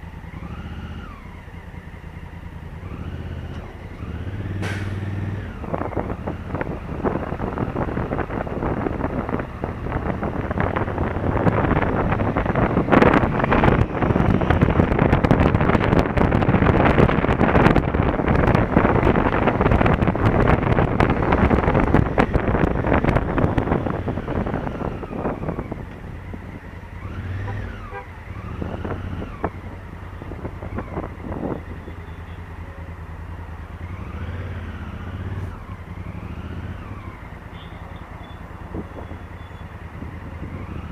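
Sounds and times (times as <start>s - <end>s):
wind on microphone: 5.3s - 31.9s.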